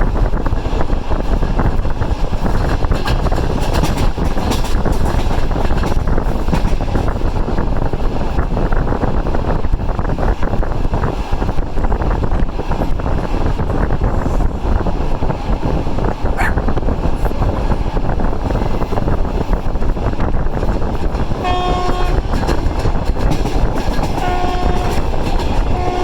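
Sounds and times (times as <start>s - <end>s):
train wheels rumbling: 0.0s - 26.0s
train horn blast: 21.4s - 22.4s, 24.2s - 26.0s.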